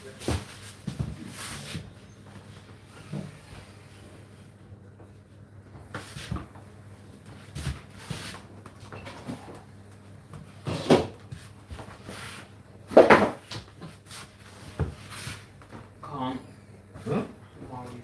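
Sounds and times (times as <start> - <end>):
household knocks and thumps: 12.9 - 13.7.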